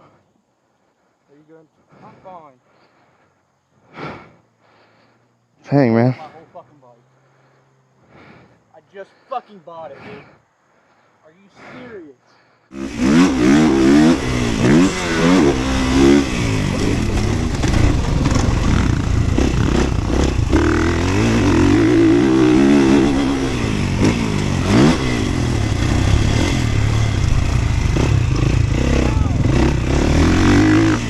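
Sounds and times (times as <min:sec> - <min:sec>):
motorcycle engine revving: 0:12.7 - 0:31.0
steady rush of noise: 0:12.8 - 0:31.0.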